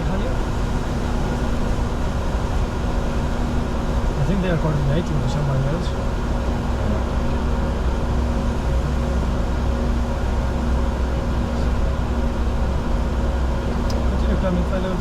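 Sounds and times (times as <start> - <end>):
rush of airflow: 0.0 - 14.2
low engine drone: 0.0 - 15.0.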